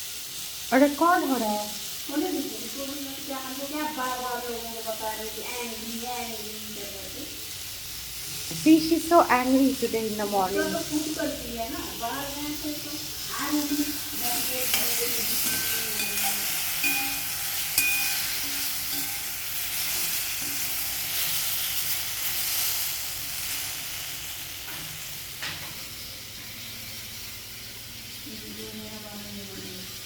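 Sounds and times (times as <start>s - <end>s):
food sizzling in a frying pan: 0.0s - 30.0s
utensil clicking against pan: 14.4s - 21.3s.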